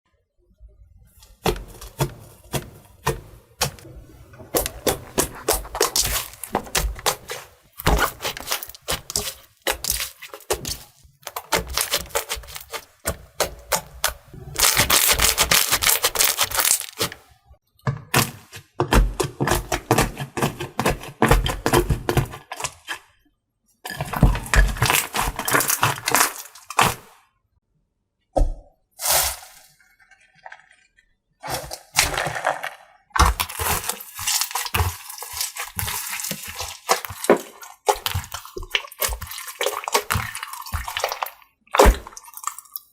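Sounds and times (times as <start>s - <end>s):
slime crackling and popping: 4.6s - 17.2s, 31.5s - 42.9s.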